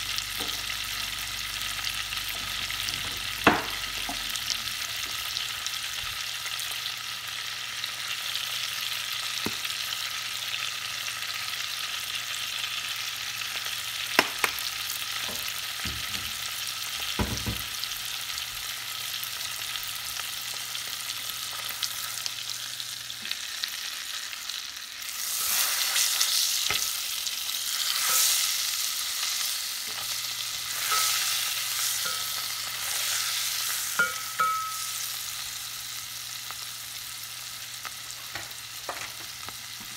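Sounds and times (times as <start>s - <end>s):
fish sizzling in butter: 0.0s - 39.9s
spatula turning steak: 25.0s - 35.1s.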